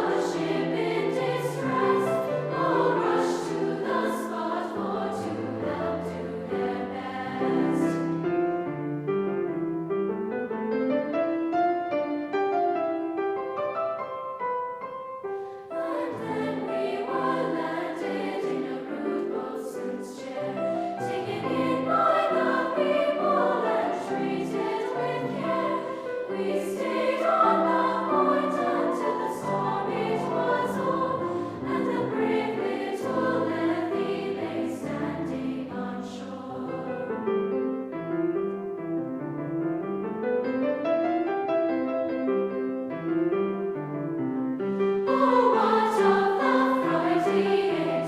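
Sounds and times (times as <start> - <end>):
children's choir singing: 0.0 - 8.3, 15.6 - 37.3, 45.0 - 48.0
piano accompaniment: 0.0 - 48.0.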